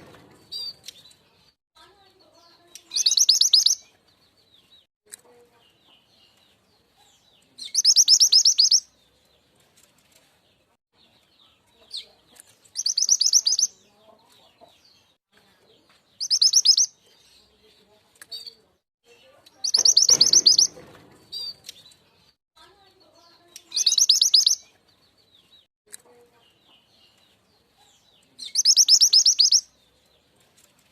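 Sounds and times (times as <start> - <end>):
faint bird chirps: 2.2 - 3.9, 7.0 - 8.9, 11.4 - 14.4, 15.7 - 22.0, 22.9 - 24.7, 26.1 - 30.0.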